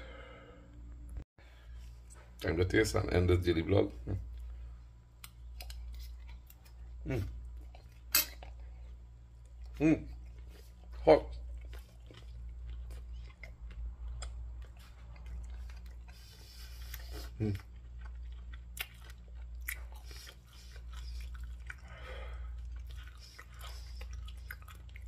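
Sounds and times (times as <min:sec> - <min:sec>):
wet chewing: 0:05.2 - 0:25.0.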